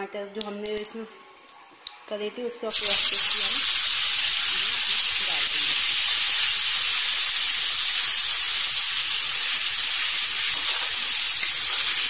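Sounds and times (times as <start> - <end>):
paste sizzling in hot oil: 2.7 - 12.0.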